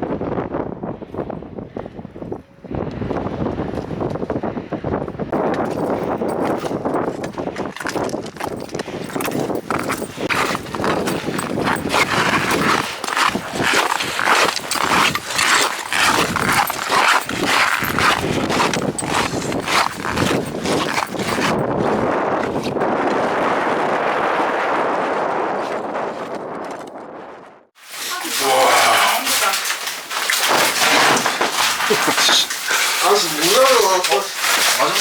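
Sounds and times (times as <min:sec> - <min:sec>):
boots crunching on snow: 0:08.8 - 0:22.0, 0:29.6 - 0:35.0.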